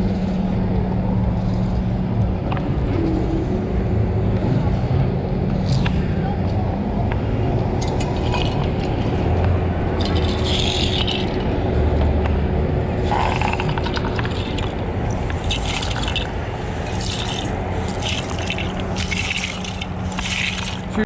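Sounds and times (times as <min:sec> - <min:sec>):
low engine hum: 0:00.0 - 0:21.0
scraping strokes: 0:07.8 - 0:11.6, 0:13.0 - 0:21.0.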